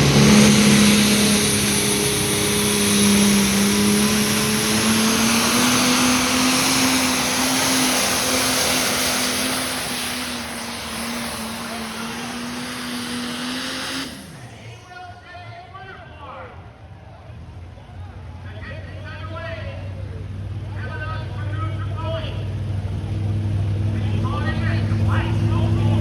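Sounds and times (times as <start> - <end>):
tractor engine under load: 0.0 - 14.9.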